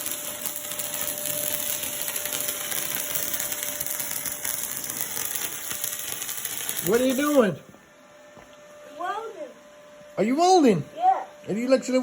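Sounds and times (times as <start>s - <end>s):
arc welder crackling: 0.0s - 8.7s.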